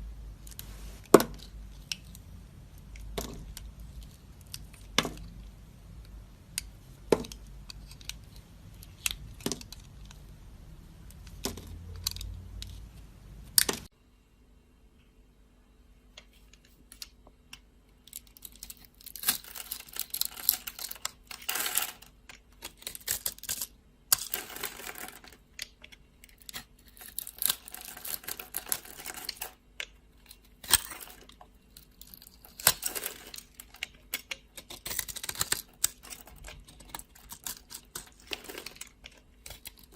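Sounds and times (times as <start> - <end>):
knife scraping soap: 34.1 - 38.5.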